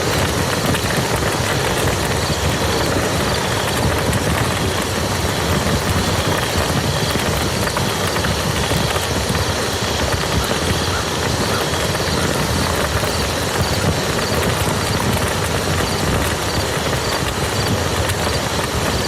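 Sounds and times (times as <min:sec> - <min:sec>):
rain falling on mud: 0:00.0 - 0:19.0.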